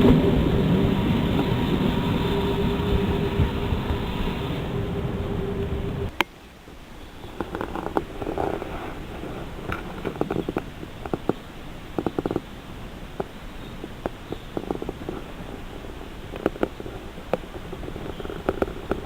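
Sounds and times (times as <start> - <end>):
train low rumble: 0.0 - 6.1
train wheels clicking over rail joints: 0.0 - 6.1.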